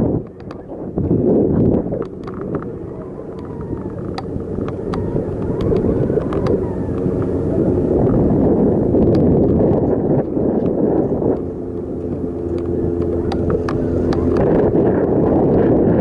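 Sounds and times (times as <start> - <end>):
wind buffeting microphone: 0.0 - 16.0
light clicks and rattles: 1.9 - 8.2, 10.2 - 14.6.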